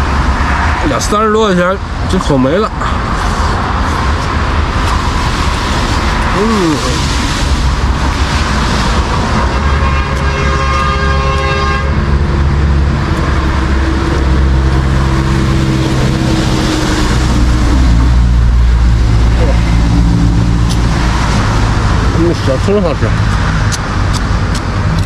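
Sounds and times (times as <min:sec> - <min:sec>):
road traffic rumble: 0:00.0 - 0:25.0
vehicle horn: 0:09.4 - 0:12.0.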